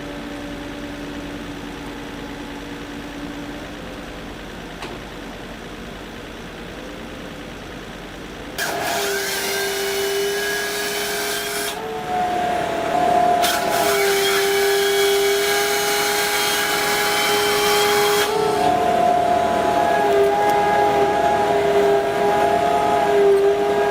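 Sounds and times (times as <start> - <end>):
power saw cutting wood: 8.6 - 23.9.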